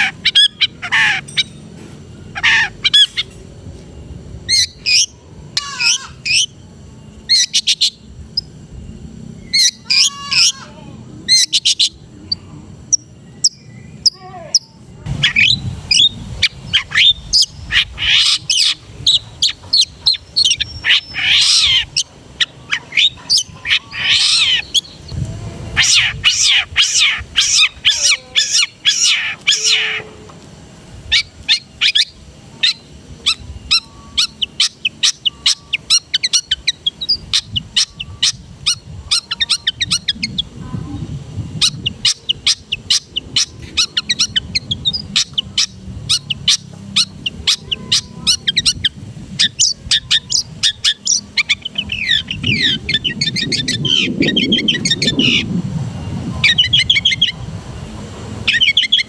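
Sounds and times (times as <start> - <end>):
bird singing chirps and whistles: 4.5 - 8.5, 9.4 - 10.6, 13.0 - 25.2, 25.8 - 30.0, 31.1 - 40.5, 41.6 - 55.5, 56.4 - 57.4, 58.5 - 59.0.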